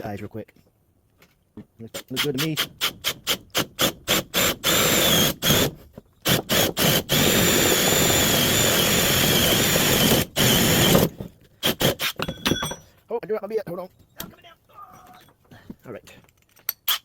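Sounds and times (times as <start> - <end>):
power drill boring into wood: 2.2 - 12.3.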